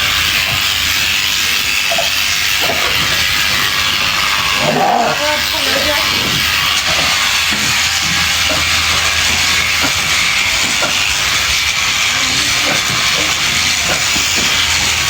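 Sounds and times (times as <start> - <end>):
electric sheep shears running: 0.0 - 15.0.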